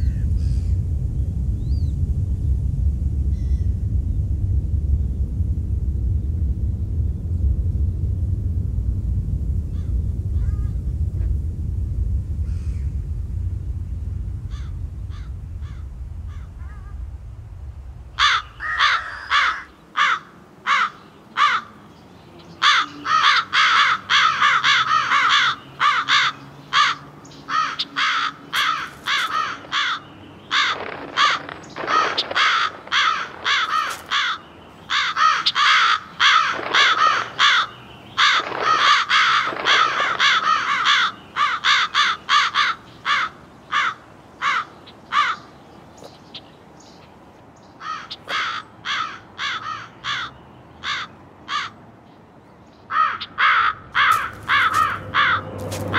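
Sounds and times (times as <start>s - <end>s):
low rumble: 0.0s - 20.6s, 28.4s - 48.0s, 53.8s - 55.9s
crows cawing: 14.5s - 16.9s, 18.2s - 21.8s, 22.6s - 45.5s, 47.8s - 51.8s, 52.9s - 55.5s.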